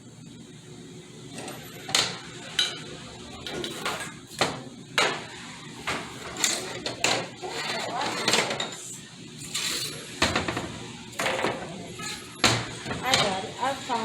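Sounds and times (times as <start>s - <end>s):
scraping and handling noise: 5.8s - 8.8s.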